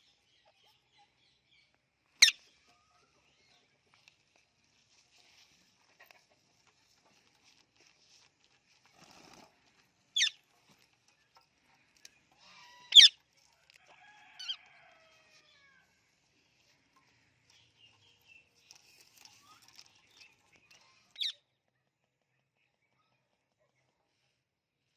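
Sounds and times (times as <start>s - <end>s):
soft parrot chatter: 2.2s - 14.8s, 18.7s - 24.4s
parrots squawking: 12.6s - 13.2s.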